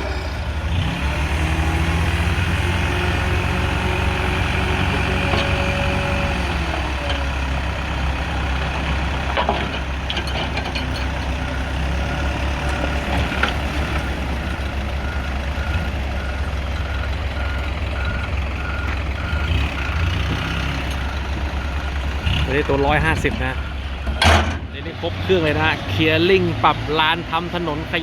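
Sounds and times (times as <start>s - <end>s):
heavy diesel machinery running: 0.0s - 28.0s
reversing alarm beeping: 14.5s - 22.0s.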